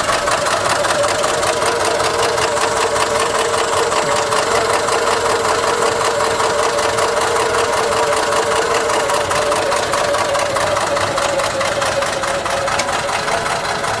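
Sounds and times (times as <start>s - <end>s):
car engine running: 0.0s - 14.0s
fast ticking engine knock: 0.0s - 14.0s.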